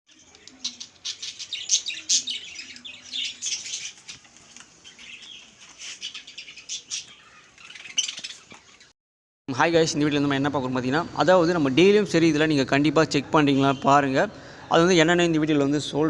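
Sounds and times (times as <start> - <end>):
budgies chirping and chattering: 0.1 - 8.9.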